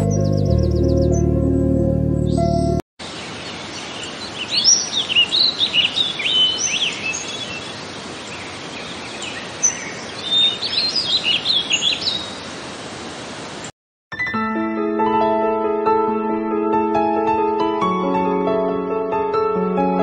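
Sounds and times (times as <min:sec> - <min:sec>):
small birds chirping and twittering: 0:03.0 - 0:12.6.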